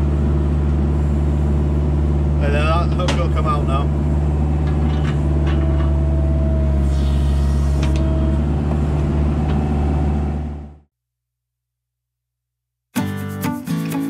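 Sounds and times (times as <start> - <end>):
diesel engine running: 0.0 - 10.9.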